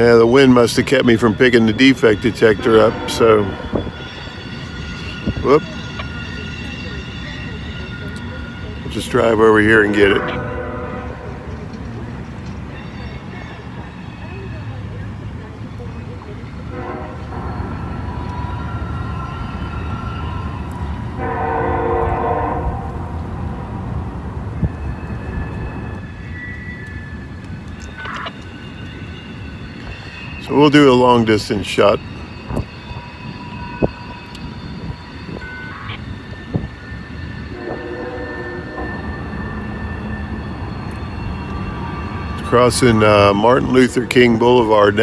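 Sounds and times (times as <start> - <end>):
distant train horn: 0.0 - 14.7, 16.5 - 45.0
passing train rumble: 0.0 - 45.0
locomotive air horn blasts: 2.4 - 4.3, 9.7 - 11.6, 16.7 - 23.7, 37.5 - 40.1.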